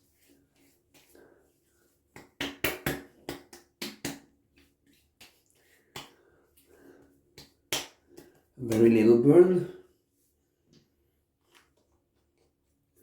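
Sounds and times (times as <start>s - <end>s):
hands slapping a face: 2.1s - 9.0s.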